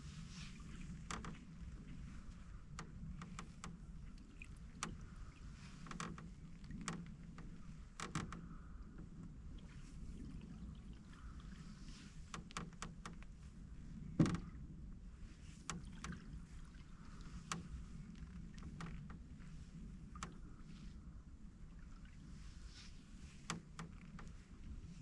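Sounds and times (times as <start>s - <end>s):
creaking hull: 0.0s - 14.7s, 15.4s - 21.1s, 23.2s - 25.0s
paddle knocking on canoe: 14.1s - 14.6s.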